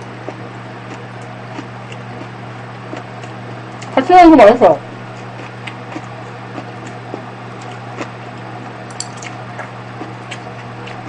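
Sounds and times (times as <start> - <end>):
steady low hum: 0.0 - 11.0
mouth chewing: 5.1 - 11.0.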